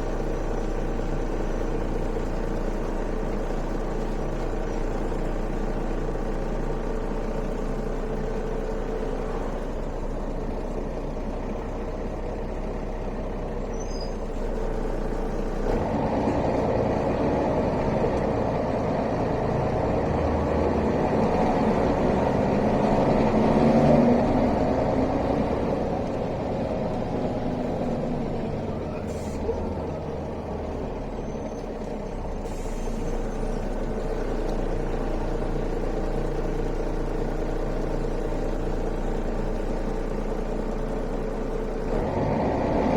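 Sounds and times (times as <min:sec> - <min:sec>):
bus engine running: 0:00.0 - 0:42.9
road noise: 0:00.0 - 0:42.9.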